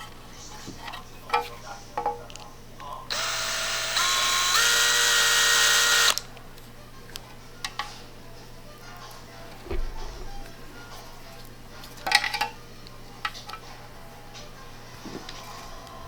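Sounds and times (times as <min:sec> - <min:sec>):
power tool motor whining: 0:03.1 - 0:06.3.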